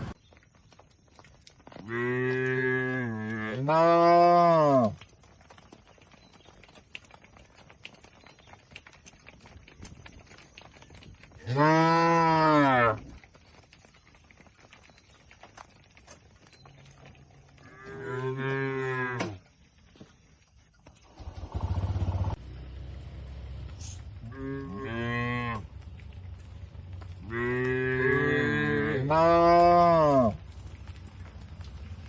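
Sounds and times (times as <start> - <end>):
cattle mooing: 1.8 - 5.0, 11.4 - 13.0, 17.5 - 19.4, 24.2 - 25.7, 27.2 - 30.4
low pulsing rumble: 22.2 - 27.5.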